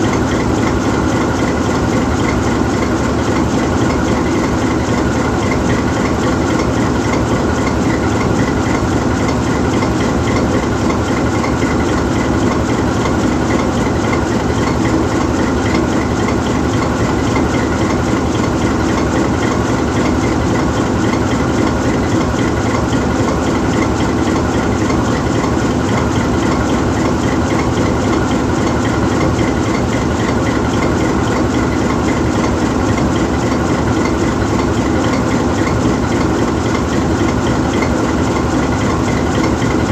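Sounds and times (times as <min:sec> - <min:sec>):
locomotive diesel engine idling: 0:00.0 - 0:39.9.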